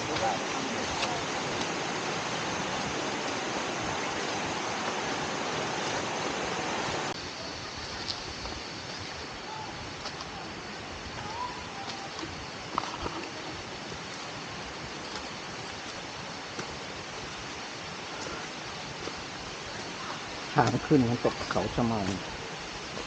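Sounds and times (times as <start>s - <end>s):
stream water rushing: 0.0s - 23.0s.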